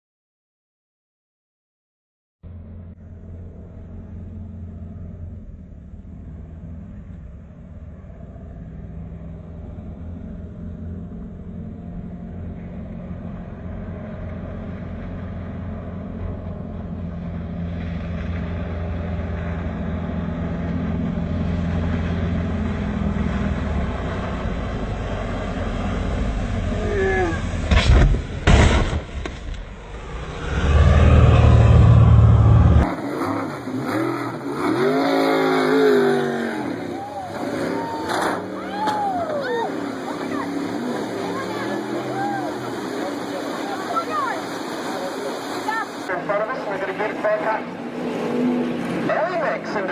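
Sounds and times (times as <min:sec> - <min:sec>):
boat engines droning: 0:02.5 - 0:28.5, 0:31.4 - 0:49.9
loud sharp impacts: 0:27.6 - 0:32.8.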